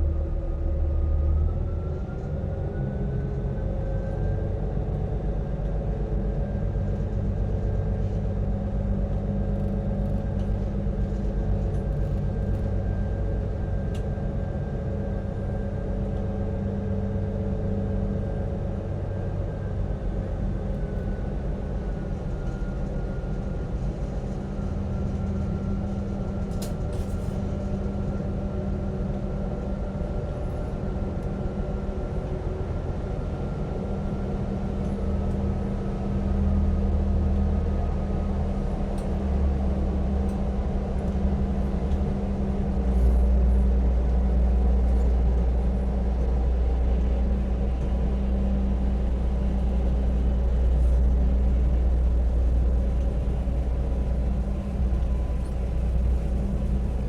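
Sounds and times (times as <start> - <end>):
marine engine rumbling: 31.1 - 57.0.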